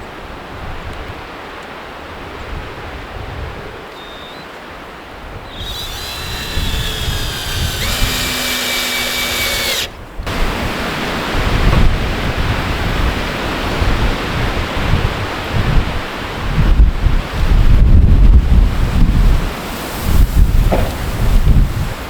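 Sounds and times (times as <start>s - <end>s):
wind buffeting microphone: 5.2s - 22.0s
power drill whining: 5.5s - 10.4s.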